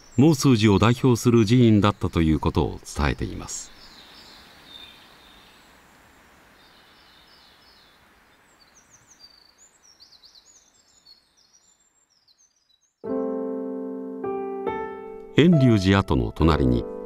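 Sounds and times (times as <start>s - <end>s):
background hiss: 0.0s - 13.3s
small birds chirping: 0.0s - 13.4s.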